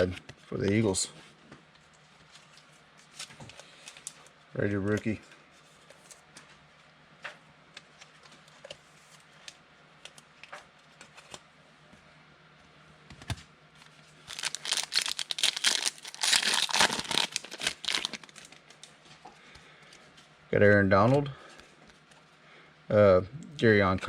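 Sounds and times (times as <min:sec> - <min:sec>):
card pack wrapper tearing and crinkling: 0:14.2 - 0:18.9.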